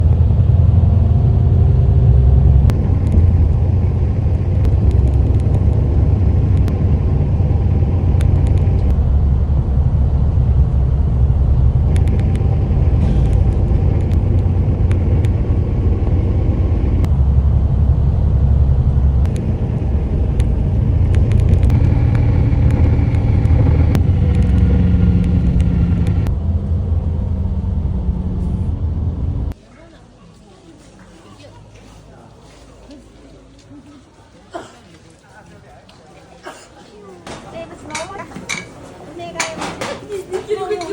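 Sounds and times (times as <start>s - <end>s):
vehicle rumble from inside cabin: 0.0s - 29.6s.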